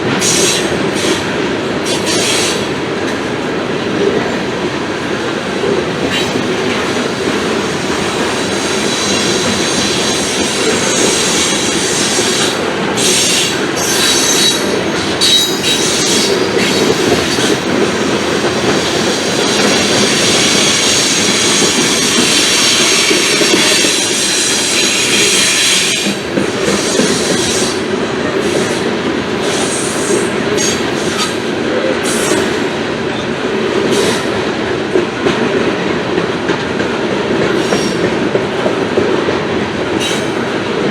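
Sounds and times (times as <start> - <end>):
train wheels rolling on rail: 0.0 - 40.9
high-pitched wheel squeal: 13.0 - 17.4.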